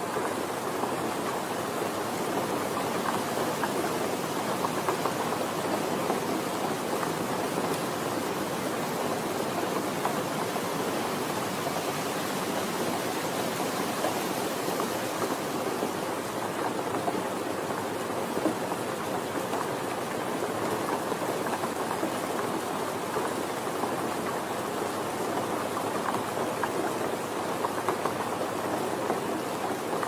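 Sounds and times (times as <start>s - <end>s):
gentle rain falling: 0.0s - 30.0s.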